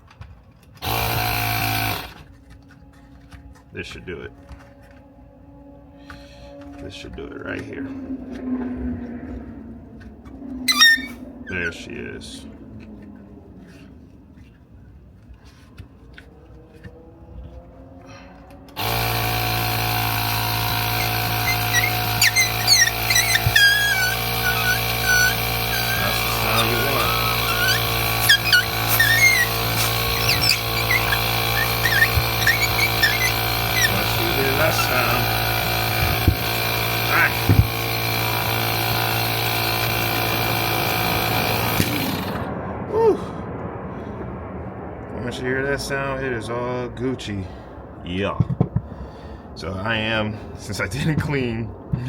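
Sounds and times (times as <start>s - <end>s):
air compressor motor humming: 0.8s - 2.2s, 18.8s - 42.4s
short squeak: 10.7s - 11.2s, 20.9s - 35.3s.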